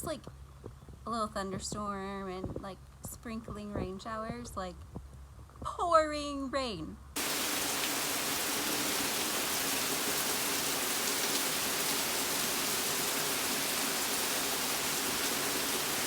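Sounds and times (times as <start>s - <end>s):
heavy rain pouring: 7.2s - 16.0s.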